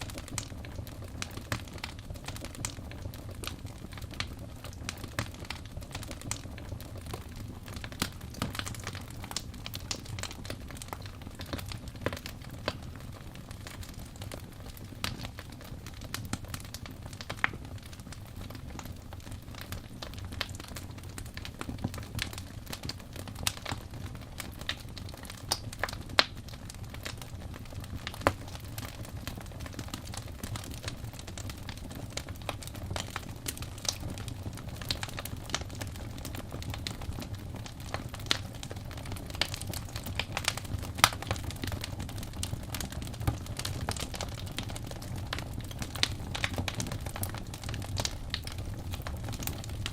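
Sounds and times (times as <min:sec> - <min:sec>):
wood fire crackling: 0:00.0 - 0:49.9
sharp pops and snaps: 0:25.5 - 0:26.5.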